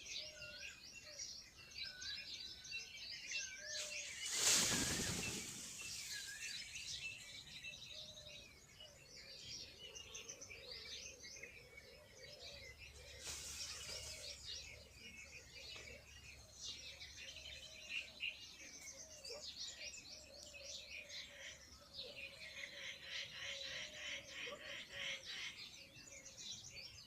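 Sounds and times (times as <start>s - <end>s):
small birds chirping: 0.0s - 27.0s
rustling rush: 4.0s - 6.6s.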